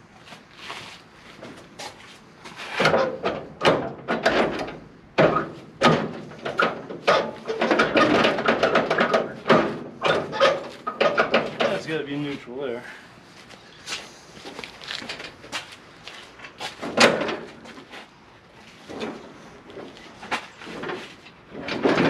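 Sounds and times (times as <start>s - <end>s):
metal parts clunking and scraping: 2.5s - 12.0s, 16.4s - 22.0s.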